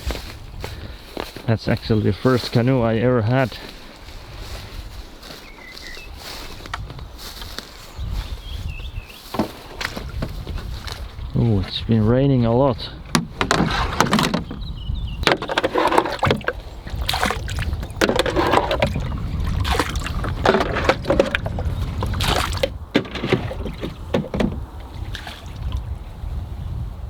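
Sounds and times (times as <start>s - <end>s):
water sloshing: 12.9s - 25.9s
paddle splashing through water: 13.0s - 14.6s, 15.2s - 25.9s
paddle knock: 13.0s - 25.8s.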